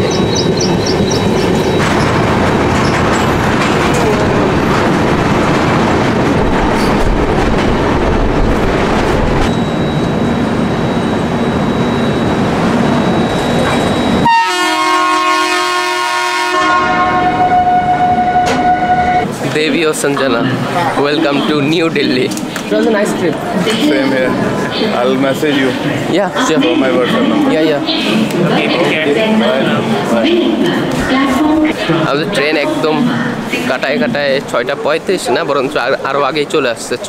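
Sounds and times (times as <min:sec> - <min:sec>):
train rumble with rail clatter: 0:00.0 - 0:37.0
train horn: 0:14.2 - 0:19.3.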